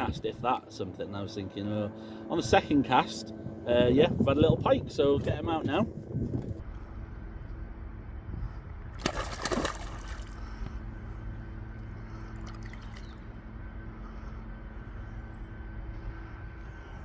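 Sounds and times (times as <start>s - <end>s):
steady low hum: 0.0s - 17.0s
fish splashing in water: 9.0s - 10.6s.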